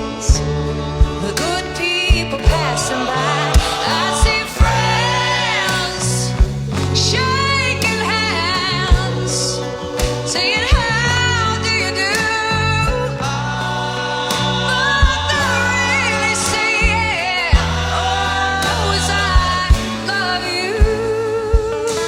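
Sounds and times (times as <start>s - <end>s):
drum hits: 0.0s - 7.1s
bass notes: 0.0s - 22.0s
woman singing soulful ballad: 0.0s - 22.0s.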